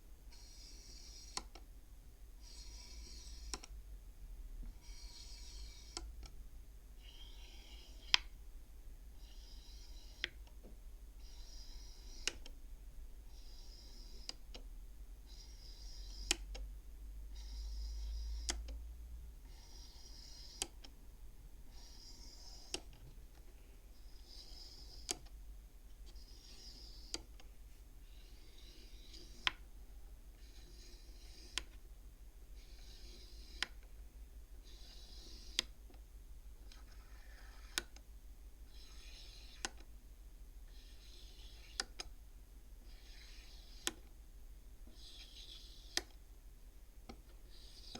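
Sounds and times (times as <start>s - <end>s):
wooden beads sliding and clicking: 0.3s - 1.6s, 2.4s - 3.8s, 4.6s - 6.4s, 7.0s - 8.4s, 11.2s - 12.6s, 15.3s - 16.6s, 19.5s - 21.0s, 21.7s - 29.8s, 30.4s - 31.9s, 32.5s - 36.0s, 36.6s - 38.1s, 38.7s - 40.0s, 40.6s - 42.2s, 42.8s - 44.2s, 44.8s - 46.3s, 47.0s - 47.9s.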